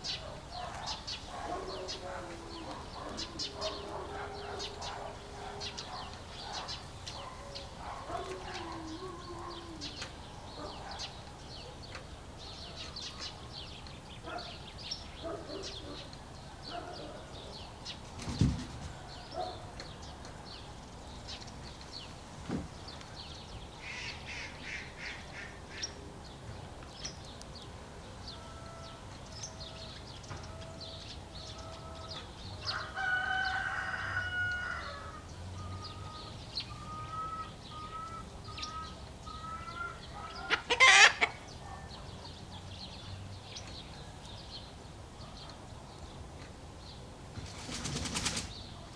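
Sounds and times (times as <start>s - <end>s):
small birds chirping: 0.0s - 28.4s
rooster crowing: 29.6s - 40.0s
hens clucking: 36.0s - 41.4s.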